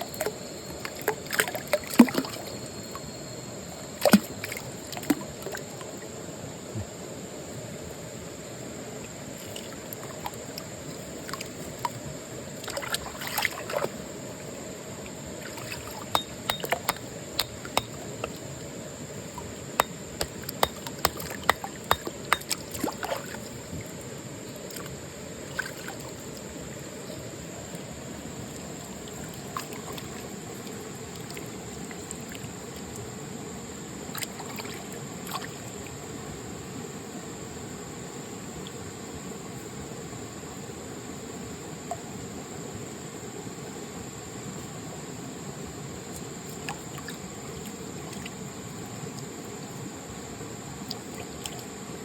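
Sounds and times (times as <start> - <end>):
stream water flowing: 0.0 - 52.0
sharp clicks and knocks: 16.1 - 18.4.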